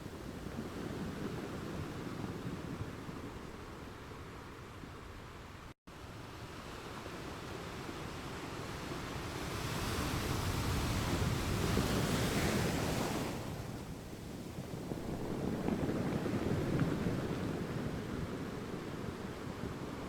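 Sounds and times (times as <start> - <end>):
ocean surf washing on shore: 7.8 - 20.0.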